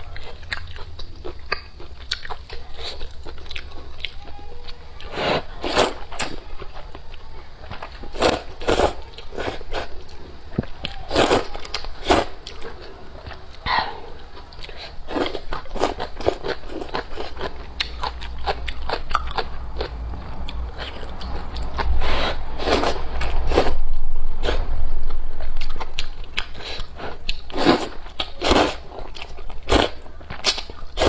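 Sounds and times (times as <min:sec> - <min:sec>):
person crunching and chewing food: 0:00.0 - 0:23.8, 0:24.4 - 0:31.0
low rumble: 0:18.6 - 0:26.9.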